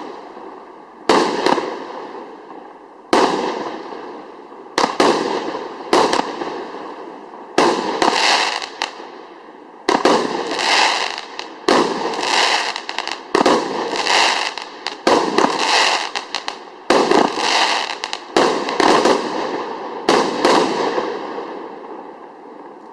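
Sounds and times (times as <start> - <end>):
firework bangs: 1.1 - 2.2, 3.1 - 4.2, 4.8 - 9.0, 9.9 - 21.8
firework crackling: 3.1 - 9.1, 9.8 - 21.7.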